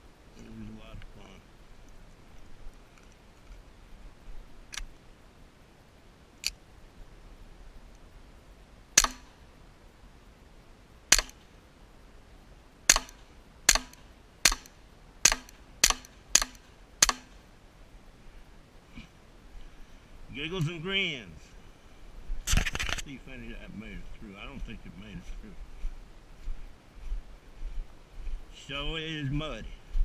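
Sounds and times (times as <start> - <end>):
faint gunshot cracks: 9.0 - 9.4, 11.1 - 11.4, 12.9 - 17.4
pistol shots: 9.0 - 9.4, 11.1 - 11.4, 12.9 - 17.4.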